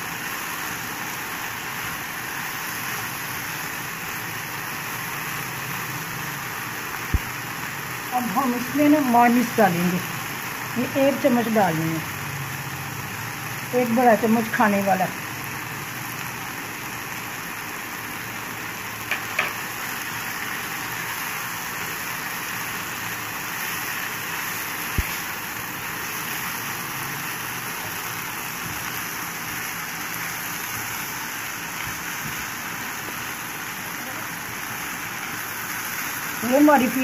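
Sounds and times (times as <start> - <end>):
food sizzling in a pan: 0.0 - 37.0
spatula tapping on pan: 19.1 - 19.6.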